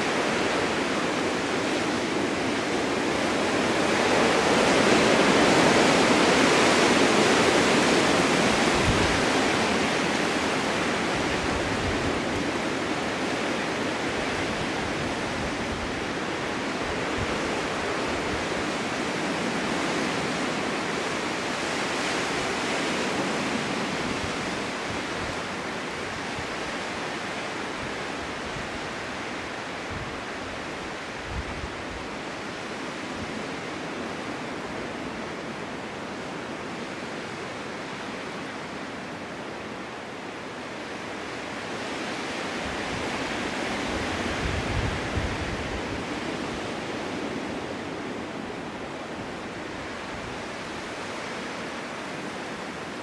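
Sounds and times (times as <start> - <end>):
strong wind rushing: 0.0 - 18.9, 42.6 - 51.3.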